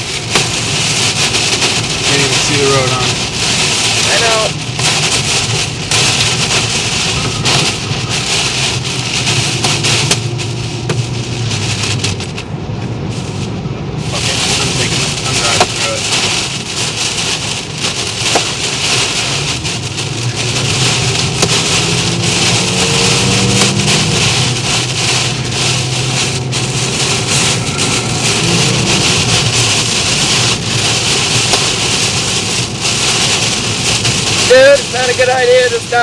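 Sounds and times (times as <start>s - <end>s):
car engine running: 0.0s - 36.0s
heavy rain on a car roof: 0.0s - 36.0s.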